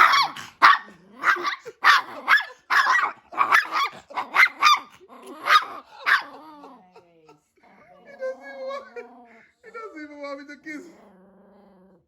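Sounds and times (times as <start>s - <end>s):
dog barking rapidly: 0.0s - 6.4s.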